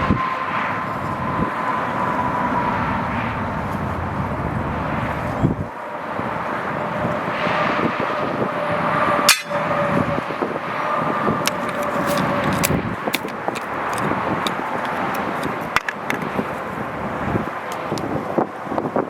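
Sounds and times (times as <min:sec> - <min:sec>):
engine-like drone with whine: 0:00.0 - 0:19.0
sharp knock: 0:09.3 - 0:09.6.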